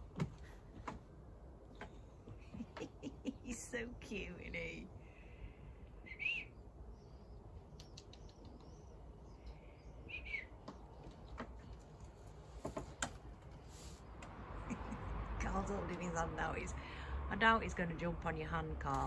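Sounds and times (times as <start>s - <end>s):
bird chirping: 6.1s - 11.8s
faint clicks: 7.7s - 8.7s.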